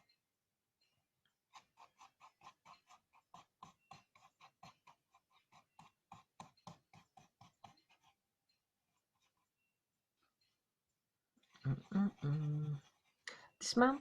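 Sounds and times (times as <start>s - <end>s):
pencil scratching on paper: 1.3s - 8.3s, 8.9s - 9.6s, 11.4s - 14.0s.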